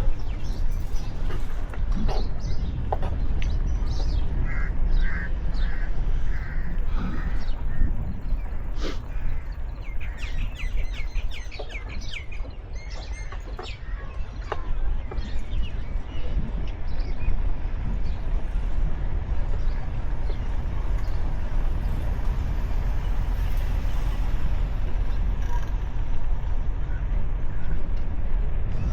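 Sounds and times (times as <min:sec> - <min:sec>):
steady low rumble: 0:00.0 - 0:28.9
small birds chirping: 0:02.1 - 0:18.2.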